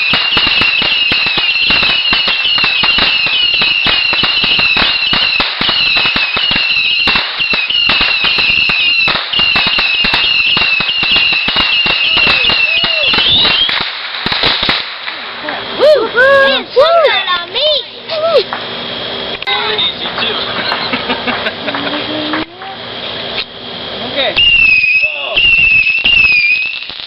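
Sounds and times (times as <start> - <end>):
fireworks pops and crackles: 0.0 - 15.7, 19.4 - 23.6, 24.4 - 27.0
fireworks falling whistles: 0.0 - 17.8, 24.2 - 27.0.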